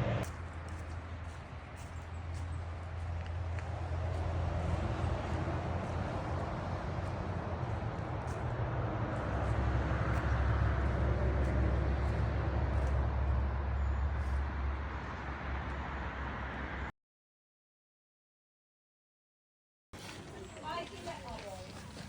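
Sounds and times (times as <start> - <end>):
low vehicle rumble: 0.0 - 16.9.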